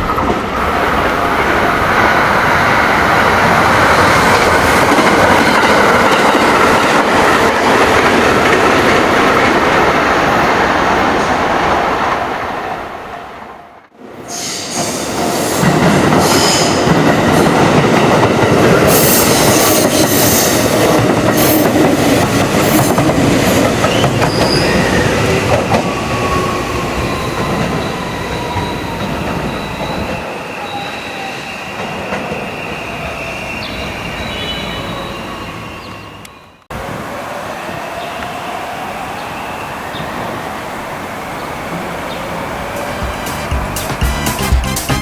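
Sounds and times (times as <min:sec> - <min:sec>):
train rolling rumble: 0:00.0 - 0:13.4, 0:14.7 - 0:45.0
train wheel squeal: 0:14.3 - 0:18.2, 0:22.6 - 0:36.6.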